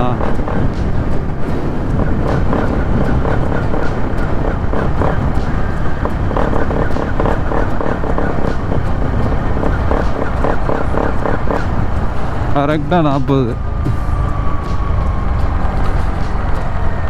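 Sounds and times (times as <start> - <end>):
motorcycle engine misfiring: 0.0 - 12.7
road and wind noise: 0.0 - 17.0.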